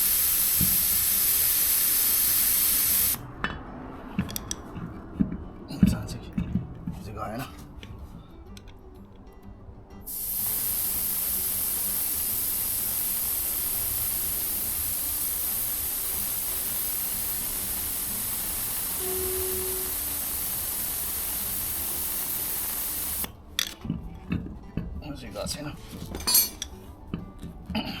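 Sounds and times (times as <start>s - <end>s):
air hissing from tyre valve: 0.0s - 3.2s, 10.1s - 23.3s.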